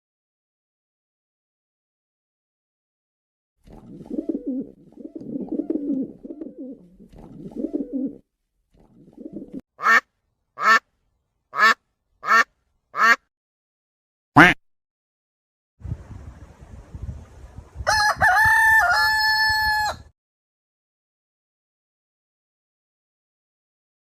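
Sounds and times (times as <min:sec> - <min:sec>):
duck quacking: 0:09.8 - 0:10.8, 0:11.5 - 0:13.2, 0:14.4 - 0:14.6.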